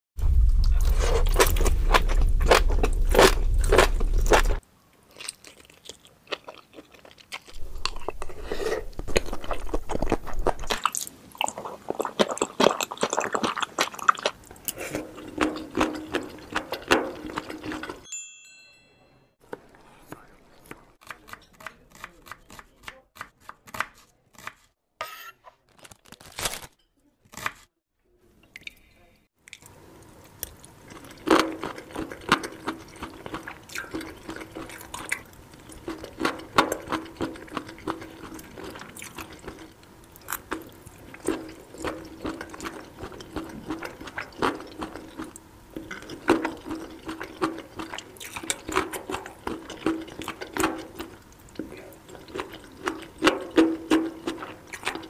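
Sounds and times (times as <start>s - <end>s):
wet sticky chewing: 0.5s - 18.0s, 29.4s - 55.0s.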